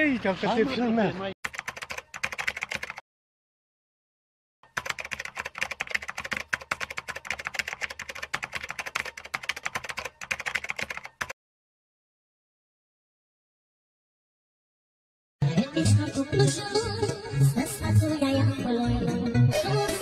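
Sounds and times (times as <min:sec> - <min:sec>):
rapid keyboard typing clicks: 0:01.4 - 0:03.0, 0:04.6 - 0:11.4.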